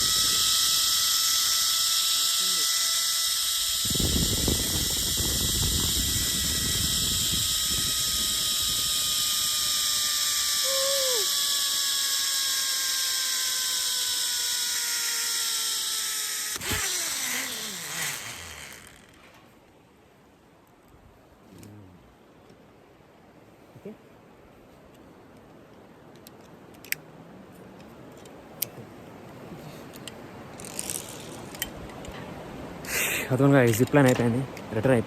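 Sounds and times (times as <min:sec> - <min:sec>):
zipline pulleys whining on cable: 0:00.0 - 0:19.4, 0:30.6 - 0:31.7
wind rumble on microphone: 0:03.6 - 0:10.1.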